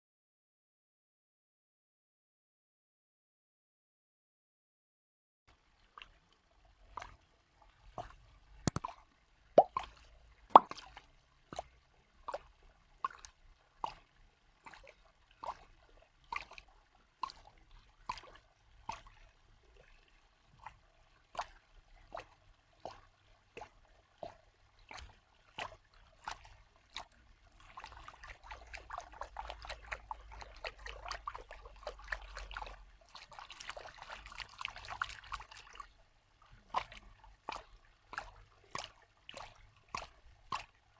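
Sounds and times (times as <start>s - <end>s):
water trickling and splashing: 5.5s - 40.9s
water drops plopping: 8.7s - 9.0s, 9.6s - 10.9s.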